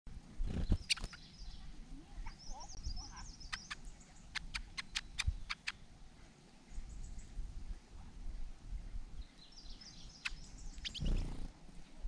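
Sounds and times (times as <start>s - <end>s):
sharp ticking bird calls: 0.7s - 1.5s, 2.4s - 5.9s, 9.6s - 11.5s
high bird warbling: 2.3s - 5.8s, 10.0s - 11.5s.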